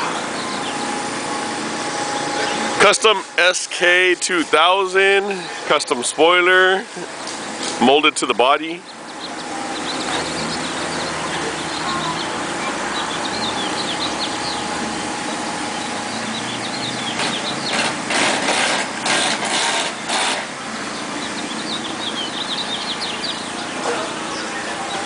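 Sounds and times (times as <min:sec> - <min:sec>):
birds chirping: 0:00.0 - 0:25.0
machine engine running: 0:00.0 - 0:25.0.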